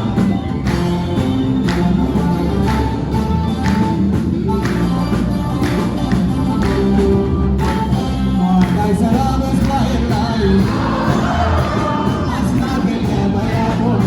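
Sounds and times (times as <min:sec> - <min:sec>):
steady percussive beat: 0:00.0 - 0:14.0
gospel singing over instruments: 0:07.5 - 0:14.0.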